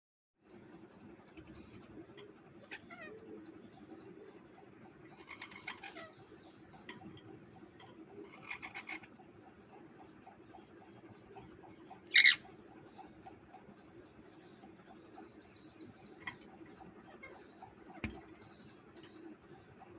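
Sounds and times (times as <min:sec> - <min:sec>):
parrot chirps and squawks: 0:02.6 - 0:03.5, 0:05.1 - 0:06.3, 0:08.2 - 0:09.2, 0:12.0 - 0:13.1.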